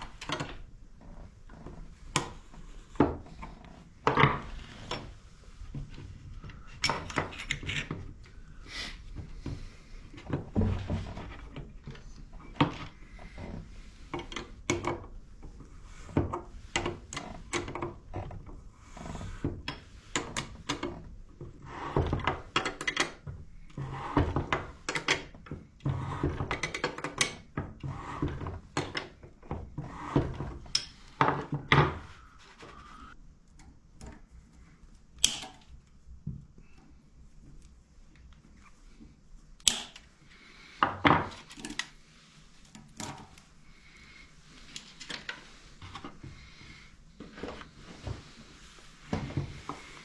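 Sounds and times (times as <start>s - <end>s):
tools and parts clicking and knocking: 0.0s - 0.7s, 6.4s - 8.2s, 14.1s - 15.2s, 22.0s - 23.2s, 26.2s - 29.3s, 35.2s - 35.8s, 39.6s - 40.1s.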